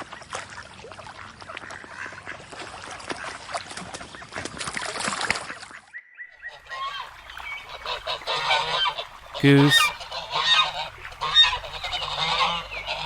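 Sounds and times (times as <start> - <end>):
ducks quacking: 6.6 - 13.0.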